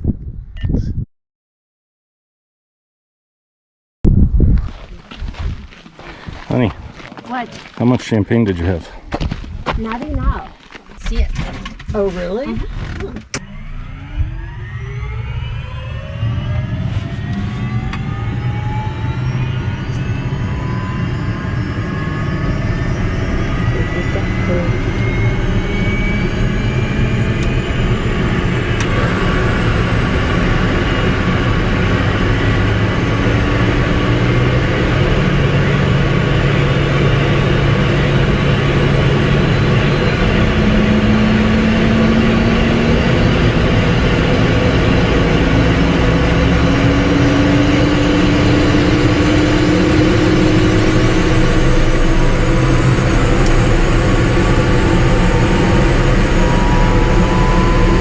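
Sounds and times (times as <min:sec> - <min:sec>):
helicopter engine and rotor: 0:07.3 - 0:08.8, 0:11.1 - 0:58.0.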